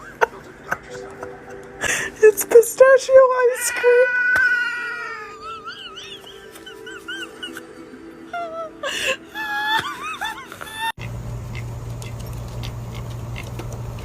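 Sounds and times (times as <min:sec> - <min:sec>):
steady low hum: 0:10.0 - 0:14.0.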